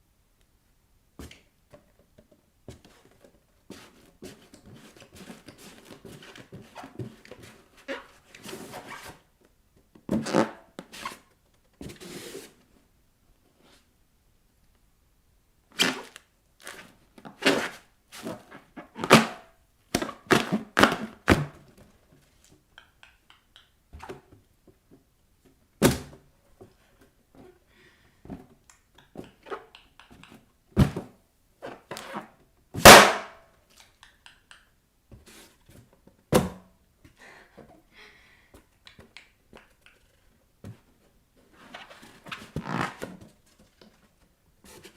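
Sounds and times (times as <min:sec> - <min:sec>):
balloon bang: 0:32.8 - 0:33.4.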